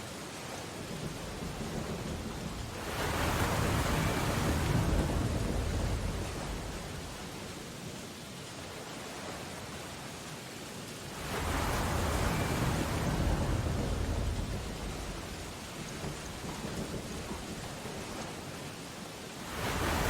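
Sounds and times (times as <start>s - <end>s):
rain on window glass: 0.1s - 7.6s, 11.1s - 20.0s
rushing rumble: 0.8s - 7.6s, 11.1s - 18.8s, 19.4s - 20.0s.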